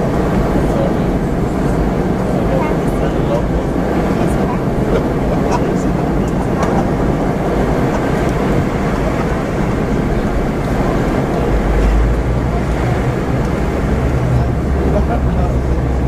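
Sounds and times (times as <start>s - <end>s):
airflow rushing over fuselage: 0.0s - 16.0s
deep jet engine drone: 0.0s - 16.0s.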